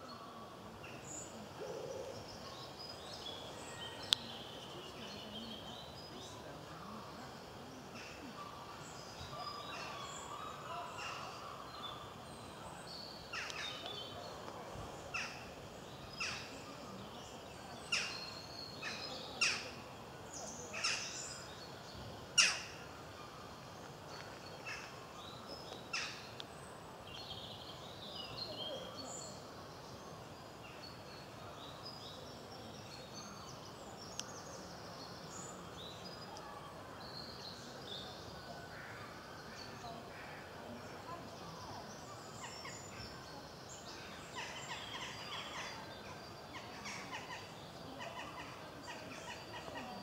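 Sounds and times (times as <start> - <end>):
outdoor background hiss: 0.0 - 50.0
songbirds twittering: 0.0 - 50.0
woodpecker call notes: 13.3 - 14.2, 15.1 - 16.7, 17.9 - 19.8, 20.7 - 21.5, 22.3 - 23.0.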